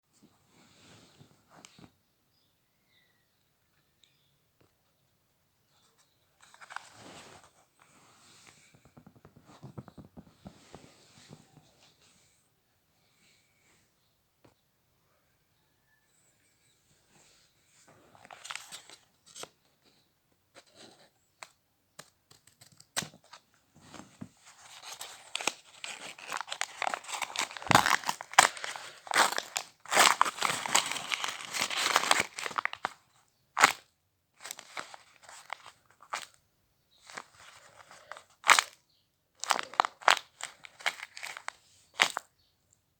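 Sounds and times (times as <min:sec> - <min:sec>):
packaging tearing and crinkling: 0:24.5 - 0:33.0, 0:33.6 - 0:33.8, 0:34.4 - 0:36.3, 0:37.1 - 0:38.8, 0:39.4 - 0:42.2.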